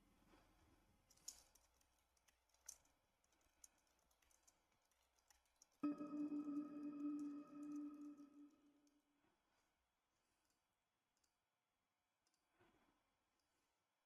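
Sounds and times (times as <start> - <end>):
steady held tone: 5.8 - 8.7.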